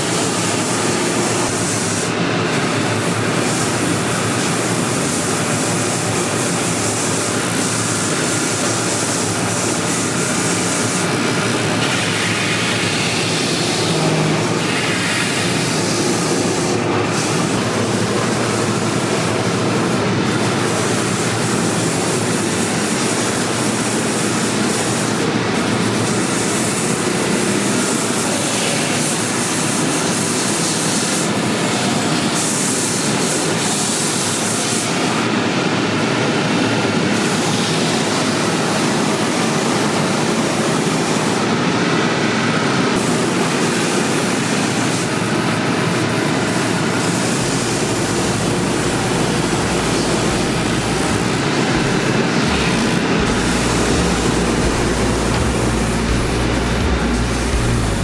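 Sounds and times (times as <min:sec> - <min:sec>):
machine hissing and rumbling: 0:44.3 - 0:58.0.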